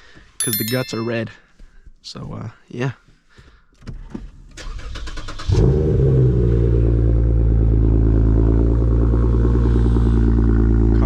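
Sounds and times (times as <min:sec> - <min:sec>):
car engine revving and idling: 0:05.6 - 0:11.0.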